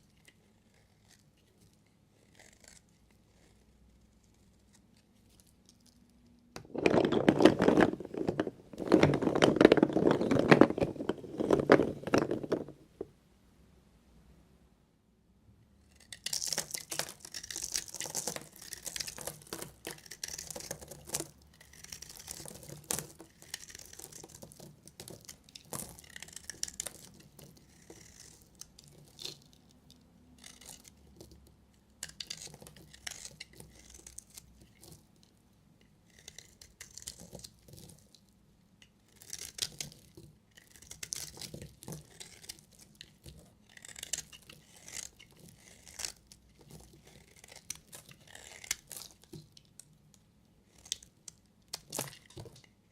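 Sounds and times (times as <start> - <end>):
knife cutting dry soap: 15.8 - 29.8, 30.4 - 35.3, 36.0 - 38.2, 38.8 - 50.0.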